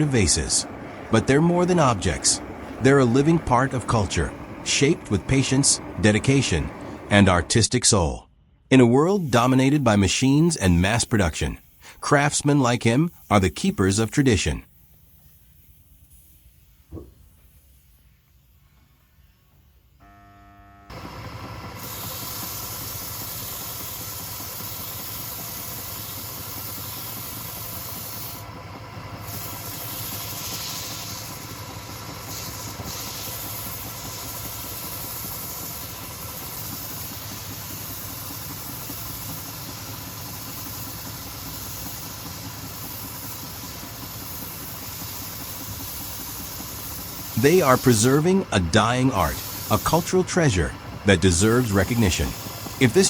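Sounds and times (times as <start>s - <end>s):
wood lathe running: 0.0s - 7.5s, 20.0s - 53.0s.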